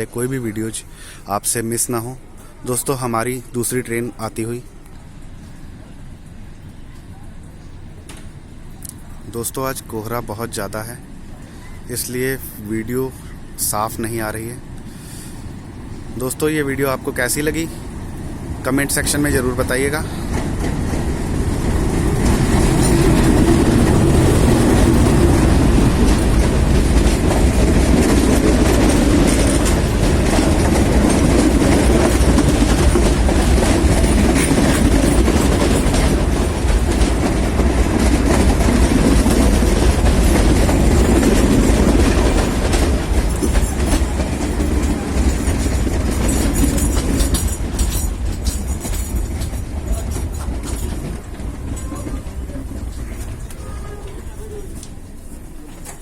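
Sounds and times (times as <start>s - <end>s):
train wheels clattering over rail joints: 14.3s - 53.7s.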